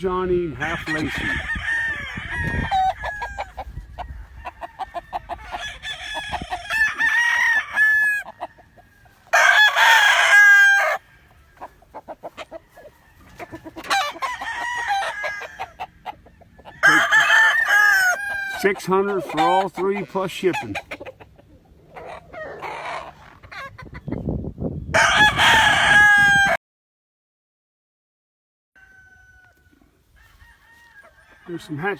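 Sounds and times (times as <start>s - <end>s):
roosters crowing: 0.4s - 23.9s, 24.9s - 26.6s, 28.8s - 31.9s
rooster clucking: 0.5s - 24.3s, 25.0s - 26.6s.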